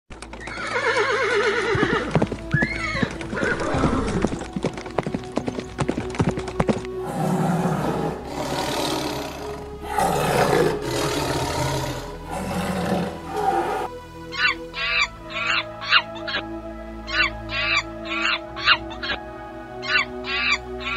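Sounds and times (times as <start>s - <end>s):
hooves clip-clopping: 0.1s - 8.3s
horse whinnying: 0.4s - 4.4s
horse blowing breathily: 7.0s - 13.9s.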